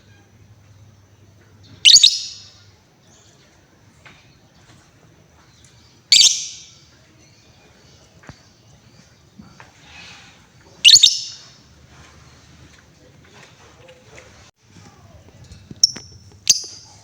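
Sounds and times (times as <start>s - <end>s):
lovebird shrieking: 10.8s - 11.5s.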